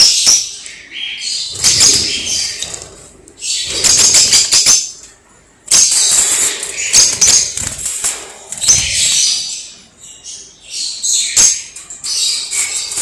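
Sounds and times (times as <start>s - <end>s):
lovebirds chattering: 0.1s - 5.0s, 8.5s - 13.0s.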